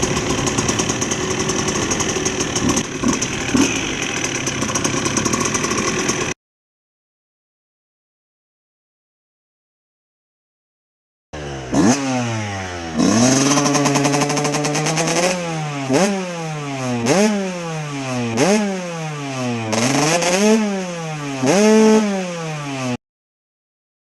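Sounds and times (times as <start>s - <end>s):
two-stroke engine revving: 0.0s - 6.4s, 11.4s - 23.0s.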